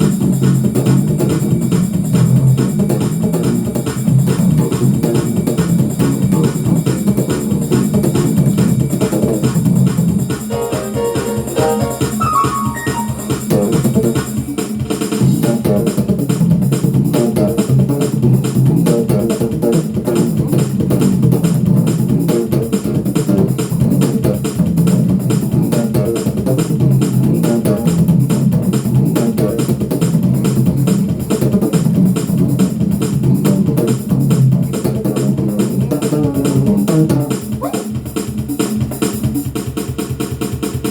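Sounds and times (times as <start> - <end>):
bass guitar: 0.0 - 14.2, 15.2 - 38.1
drums: 0.0 - 40.9
music with steady beat: 0.0 - 40.9
keyboard: 9.9 - 14.3.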